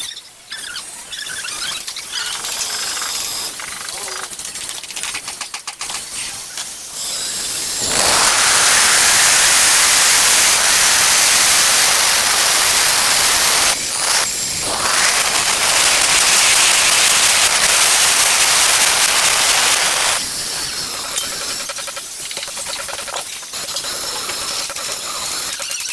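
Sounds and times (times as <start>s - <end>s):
angle grinder cutting tile: 7.0s - 20.2s.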